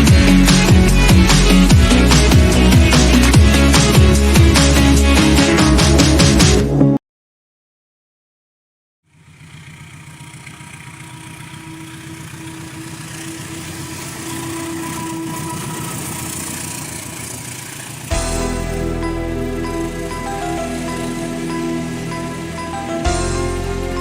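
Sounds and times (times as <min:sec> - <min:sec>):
diesel locomotive engine running: 0:00.0 - 0:06.4, 0:09.1 - 0:24.0
music: 0:00.0 - 0:07.0, 0:18.1 - 0:24.0.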